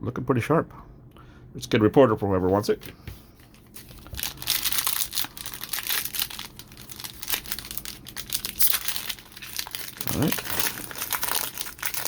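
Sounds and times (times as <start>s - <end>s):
plastic wrapper crinkling and tearing: 3.4s - 12.0s.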